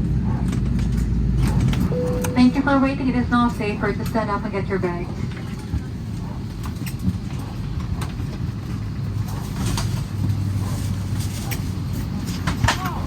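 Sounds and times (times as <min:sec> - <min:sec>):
airliner cabin hum: 0:01.4 - 0:08.8.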